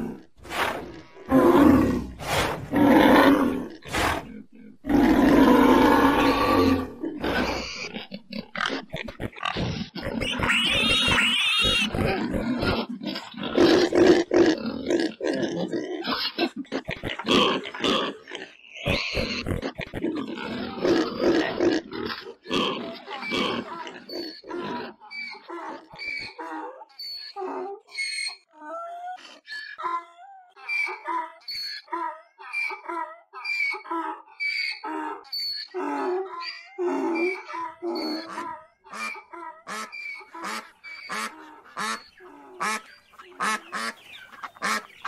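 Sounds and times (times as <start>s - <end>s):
pigs grunting: 0.0s - 27.9s
pigs squealing: 0.0s - 45.0s.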